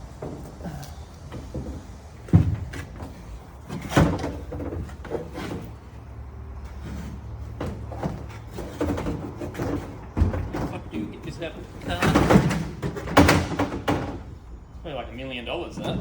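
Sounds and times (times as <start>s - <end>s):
metal panel clunks and knocks: 7.5s - 11.1s, 11.8s - 14.4s.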